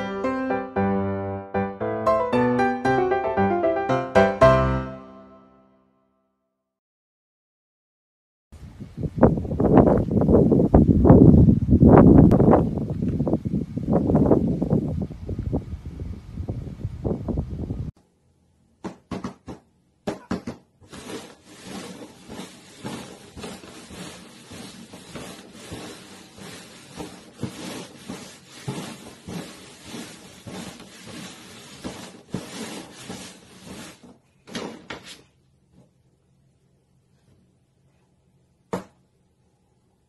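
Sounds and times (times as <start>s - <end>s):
cups sliding over cardboard: 20.8s - 34.3s.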